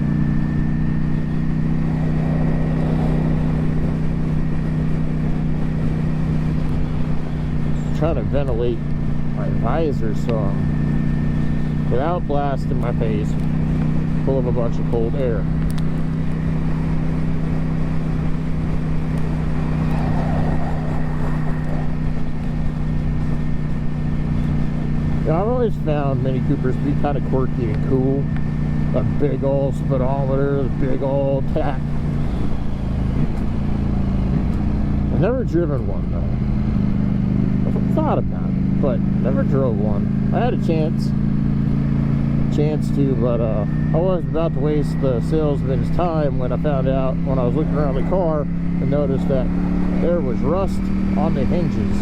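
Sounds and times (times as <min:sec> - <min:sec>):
motorcycle engine running: 0:00.0 - 0:52.0
wind and road noise hiss: 0:15.6 - 0:26.0.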